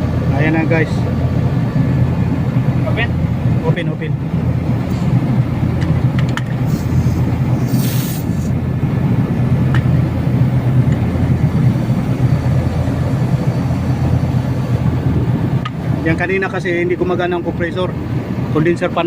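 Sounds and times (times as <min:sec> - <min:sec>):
air conditioner humming: 0:00.0 - 0:19.0
condenser fan: 0:00.0 - 0:19.0
short hiss: 0:06.7 - 0:08.6.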